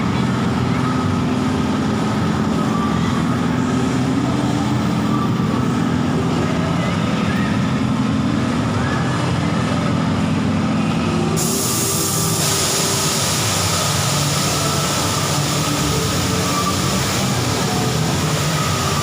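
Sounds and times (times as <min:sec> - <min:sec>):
ride mechanical hum: 0:00.0 - 0:19.0
loud hiss: 0:11.4 - 0:19.0.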